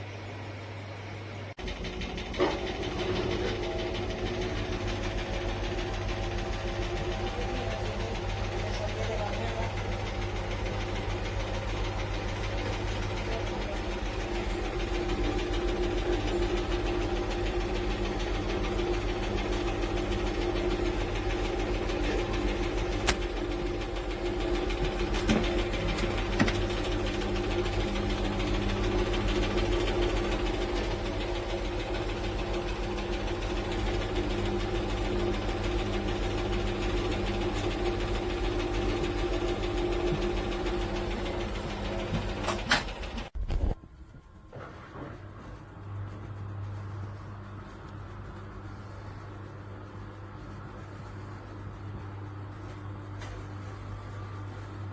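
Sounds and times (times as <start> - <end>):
washing machine running: 0.0 - 54.9.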